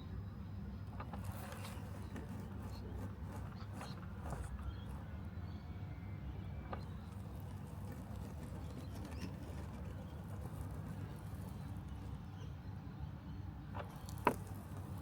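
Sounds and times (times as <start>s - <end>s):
robotic lawn mower humming: 6.8s - 12.3s.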